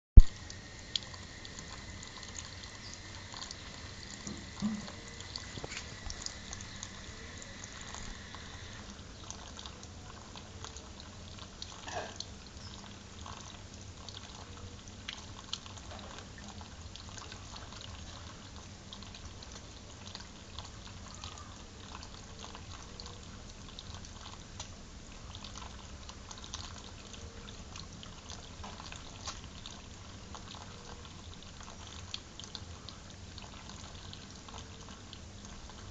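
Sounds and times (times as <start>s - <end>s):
water spraying and splashing: 0.2s - 8.8s
water drips and patters: 0.2s - 35.9s.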